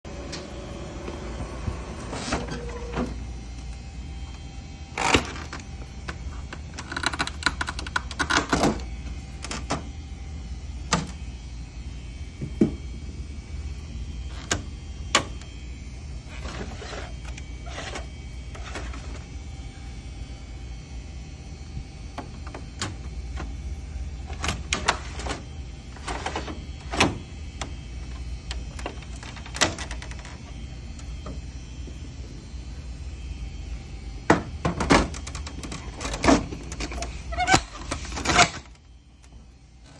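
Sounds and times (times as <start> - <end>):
low hum: 0.1 - 39.9
plastic sliding scrapes: 16.3 - 19.2.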